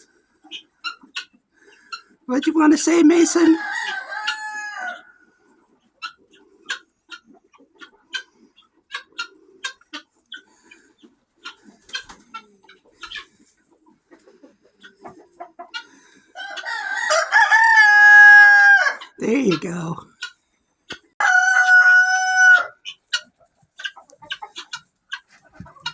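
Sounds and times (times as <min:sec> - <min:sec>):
chickens clucking: 0:00.0 - 0:25.9
rooster crowing: 0:03.4 - 0:05.1, 0:16.4 - 0:19.1, 0:21.2 - 0:22.8.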